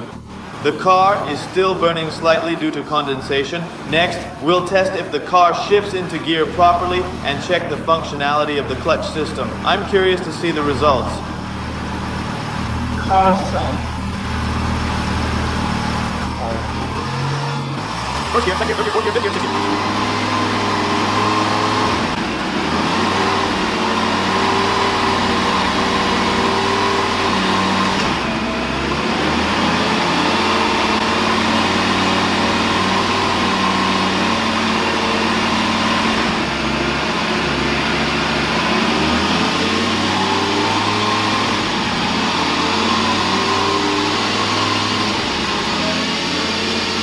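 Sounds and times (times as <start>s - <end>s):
car engine idling: 0.0s - 47.0s.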